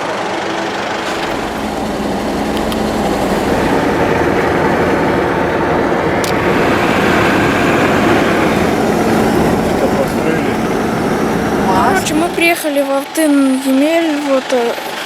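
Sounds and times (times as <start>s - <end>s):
car engine: 0.0s - 15.0s
road noise: 0.0s - 15.0s.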